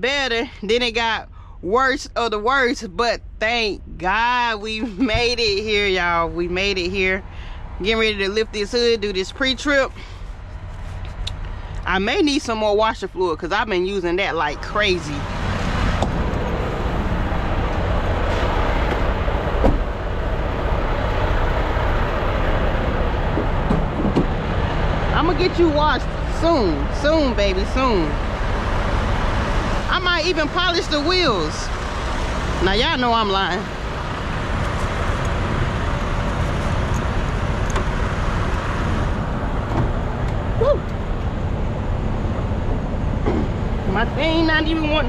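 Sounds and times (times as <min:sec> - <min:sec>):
diesel truck engine idling: 0:10.0 - 0:45.0.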